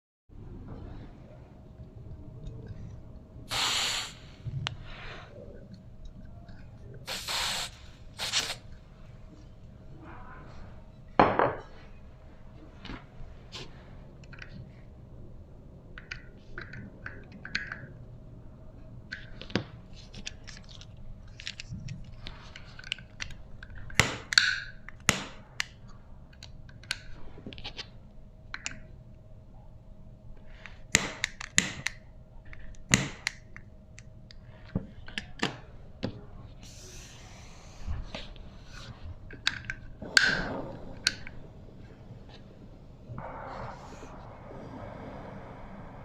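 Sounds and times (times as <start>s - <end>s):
faint hum: 0.3s - 46.0s
small parts clicking and knocking: 19.1s - 27.9s.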